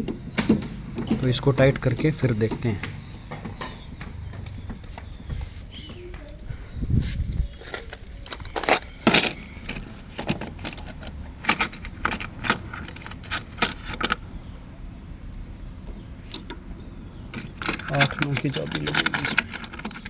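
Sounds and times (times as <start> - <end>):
metal spanners clinking: 0.0 - 3.8, 7.6 - 14.5, 16.2 - 20.0.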